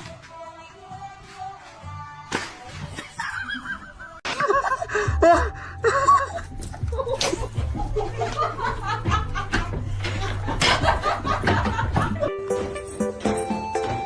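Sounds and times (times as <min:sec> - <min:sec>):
person laughing: 0:03.0 - 0:12.3.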